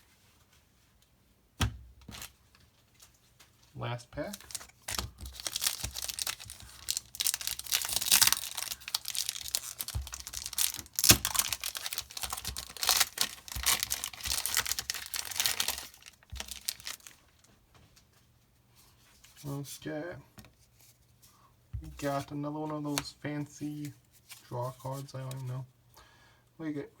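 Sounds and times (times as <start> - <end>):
foil wrapper tearing and crinkling: 4.2 - 17.2.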